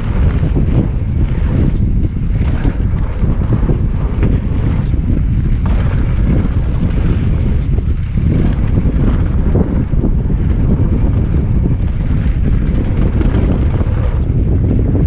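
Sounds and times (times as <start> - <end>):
low rumble from riding: 0.0 - 15.0
wind buffeting microphone: 0.0 - 15.0.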